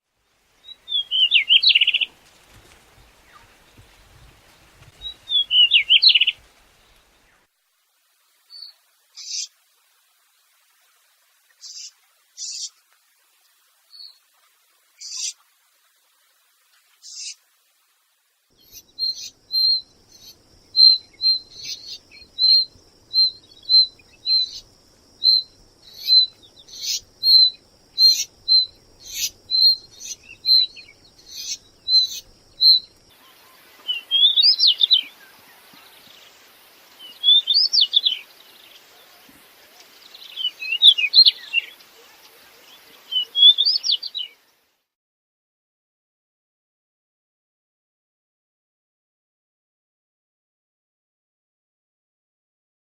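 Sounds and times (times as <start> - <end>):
scratchy warbled bird song: 0.7 - 7.0, 25.2 - 36.1, 37.1 - 38.3.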